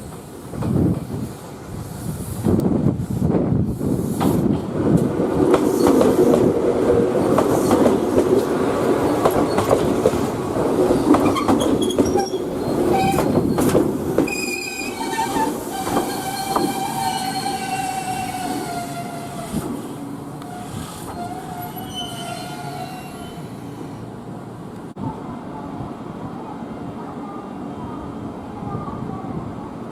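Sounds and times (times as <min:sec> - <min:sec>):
train rumble: 0:00.0 - 0:29.9
high wheel squeal: 0:14.3 - 0:19.6, 0:20.5 - 0:23.6.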